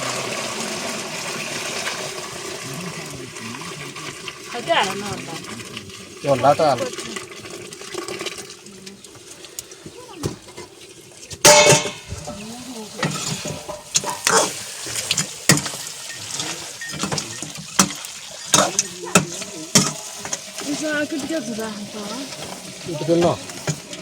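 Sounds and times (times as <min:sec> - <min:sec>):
metal pots and utensils clinking: 0:01.6 - 0:24.0
loud metal clatter: 0:11.4 - 0:12.1.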